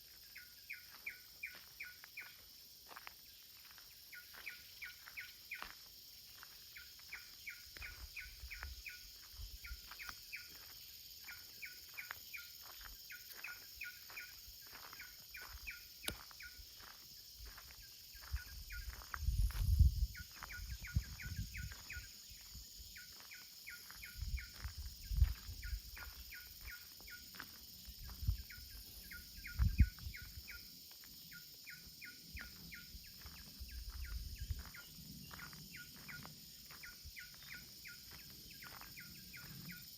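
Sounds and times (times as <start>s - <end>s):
wind gusts on microphone: 18.2s - 22.6s, 24.1s - 26.2s, 27.9s - 28.8s, 29.4s - 30.5s, 33.6s - 35.4s.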